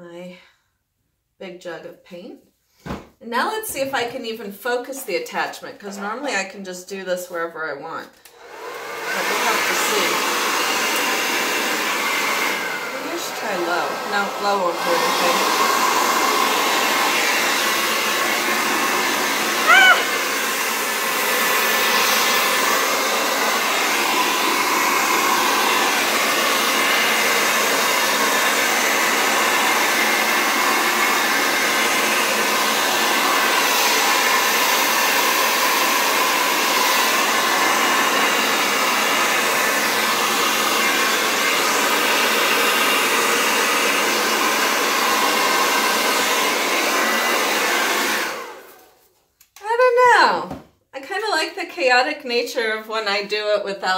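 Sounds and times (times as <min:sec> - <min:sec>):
hair dryer blowing: 0:07.7 - 0:49.1.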